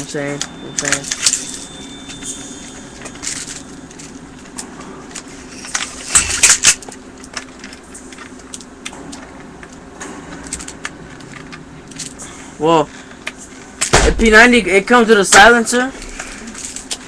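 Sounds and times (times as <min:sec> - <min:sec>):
steady low hum: 0:00.0 - 0:17.0
clicks and rattles of metal hardware: 0:00.3 - 0:02.4.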